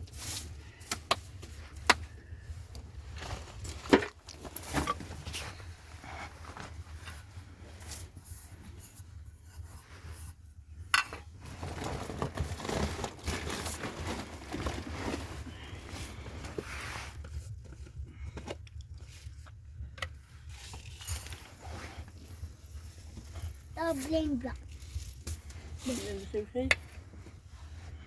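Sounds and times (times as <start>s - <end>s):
rustling and crinkling: 0.0s - 28.0s.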